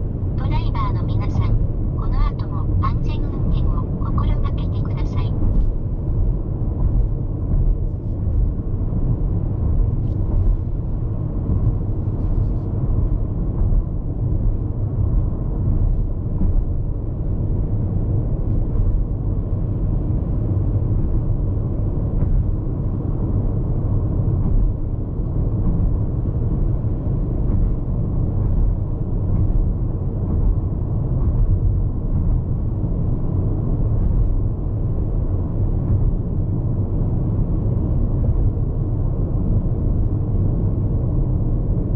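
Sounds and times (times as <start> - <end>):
tyre road rumble: 0.0 - 41.9
wind noise: 0.0 - 41.9.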